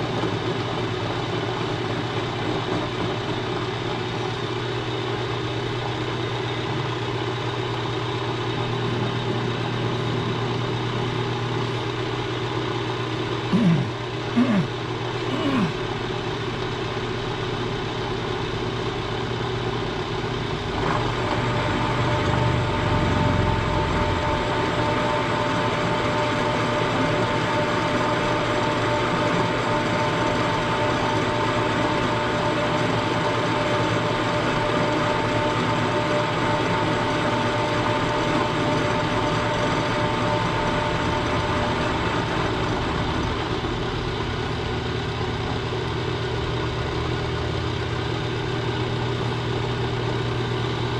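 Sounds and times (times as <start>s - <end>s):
milling machine running: 16.3s - 50.9s.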